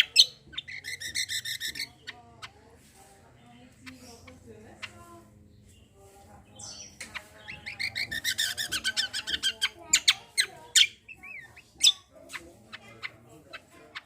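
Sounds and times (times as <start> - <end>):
songbird chirping and whistling: 0.0 - 2.5, 6.5 - 12.1.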